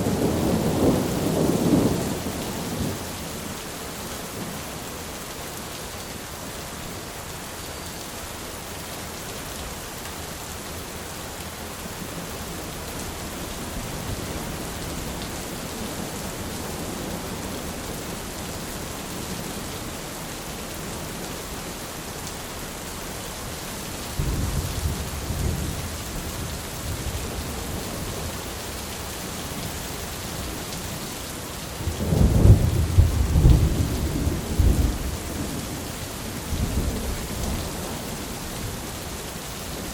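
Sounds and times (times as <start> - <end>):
thunder rumbling: 0.0 - 3.2, 24.2 - 28.3, 31.8 - 35.8
rain hissing: 0.0 - 39.9.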